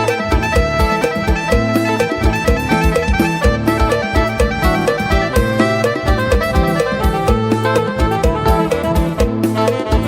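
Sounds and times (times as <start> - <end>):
bass guitar: 0.0 - 10.0
steady drum beat: 0.0 - 10.0
plucked lute: 0.1 - 9.4.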